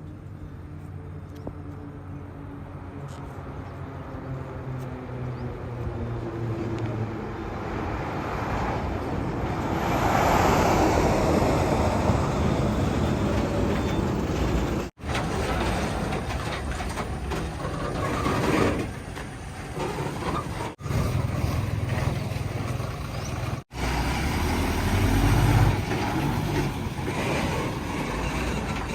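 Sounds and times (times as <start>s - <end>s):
heavy machinery diesel engine: 10.9s - 28.9s.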